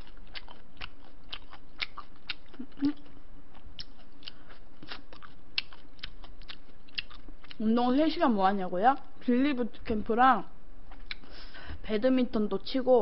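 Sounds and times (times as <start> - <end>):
chewing crispy fried food: 0.0 - 7.8, 10.8 - 11.4.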